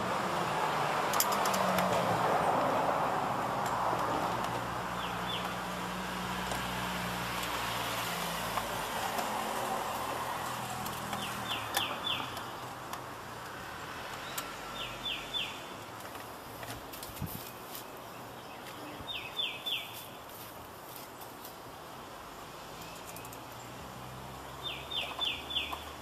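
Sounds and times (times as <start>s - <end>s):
bird chirping: 4.9s - 5.6s, 11.0s - 12.8s, 14.1s - 15.8s, 17.8s - 20.2s, 24.5s - 26.0s.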